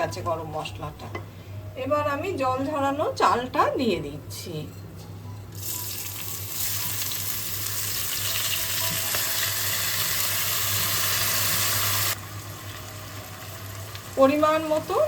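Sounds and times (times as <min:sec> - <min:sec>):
rice sizzling in hot oil: 0:05.6 - 0:15.0.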